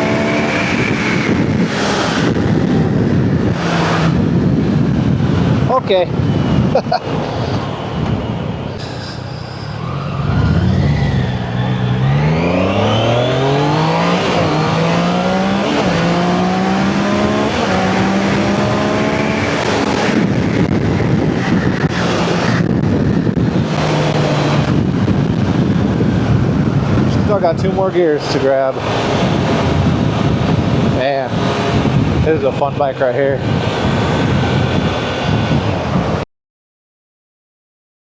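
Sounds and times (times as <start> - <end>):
motorcycle engine accelerating: 0.0 - 8.8, 9.4 - 27.4, 28.8 - 36.2
wind rushing: 0.0 - 36.2.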